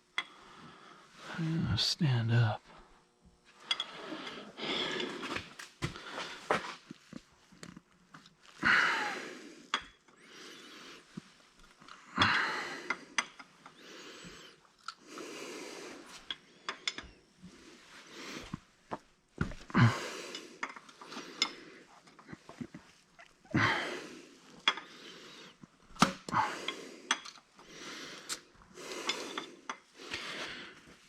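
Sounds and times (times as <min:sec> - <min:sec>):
man breathing heavily: 0:00.2 - 0:01.6, 0:03.7 - 0:06.8, 0:08.6 - 0:16.7, 0:17.4 - 0:18.7, 0:19.4 - 0:22.8, 0:23.5 - 0:31.0.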